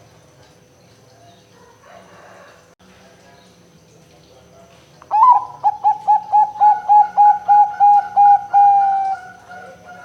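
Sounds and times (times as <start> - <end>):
dove cooing: 5.1 - 10.0.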